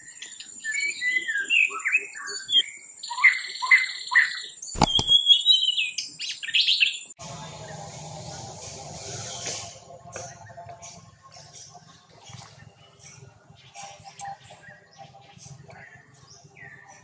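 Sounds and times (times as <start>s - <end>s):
sharp click: 4.8s - 5.2s.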